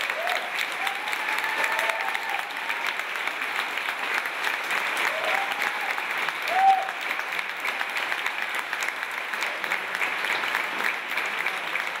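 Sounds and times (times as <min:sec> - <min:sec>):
shout from crowd: 0:00.0 - 0:02.9, 0:05.0 - 0:07.0
audience applauding: 0:00.0 - 0:12.0.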